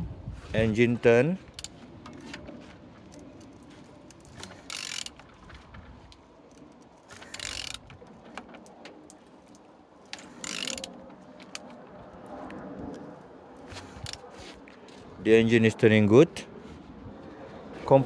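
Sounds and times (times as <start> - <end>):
tool clicking and rasping: 3.1 - 5.5, 6.5 - 8.1, 10.1 - 11.7, 13.7 - 14.4.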